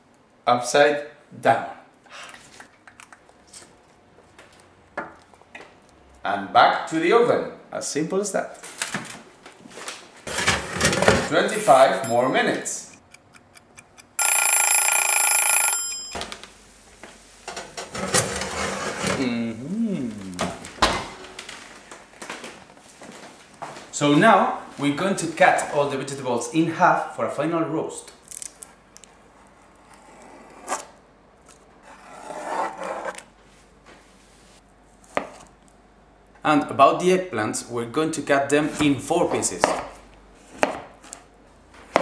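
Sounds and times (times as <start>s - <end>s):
alarm clock ringing: 12.0s - 12.6s, 13.6s - 16.2s.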